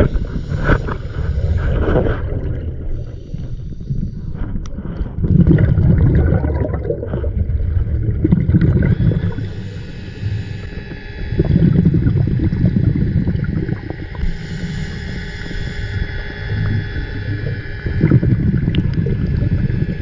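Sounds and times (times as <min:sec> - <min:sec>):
scuba bubbles: 0:00.0 - 0:20.0
underwater rumbling and gurgling: 0:00.0 - 0:20.0
faint high whine: 0:06.5 - 0:20.0.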